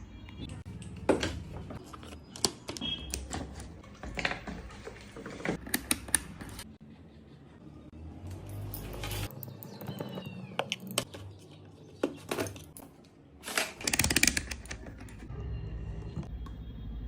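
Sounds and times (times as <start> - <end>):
plastic parts clicking and knocking: 0.7 - 6.7, 13.5 - 15.3.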